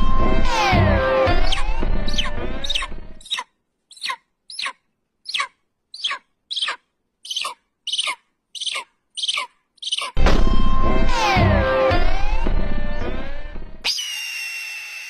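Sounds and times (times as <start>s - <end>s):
music: 0.0s - 3.2s, 10.2s - 13.8s
bird shrill calls: 1.4s - 10.2s.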